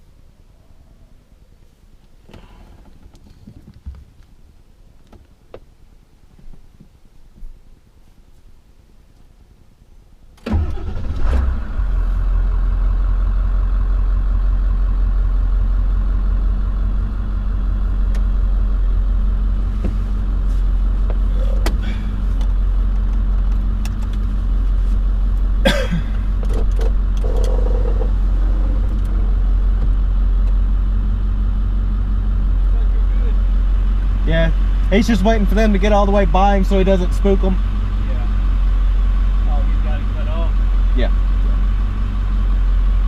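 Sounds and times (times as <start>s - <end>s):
truck engine cranking and idling: 10.3s - 43.0s.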